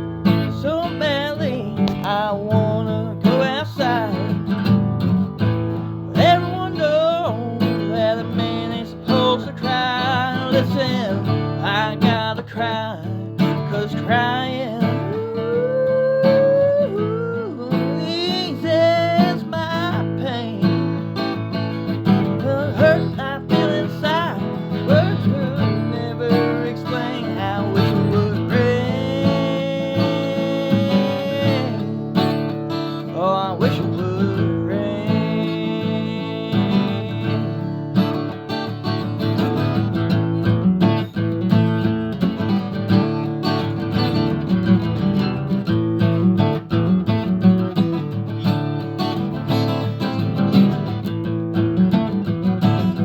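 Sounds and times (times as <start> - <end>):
acoustic guitar strumming: 0.0 - 53.0
wordless melodic vocal line: 0.2 - 4.6, 6.1 - 38.6.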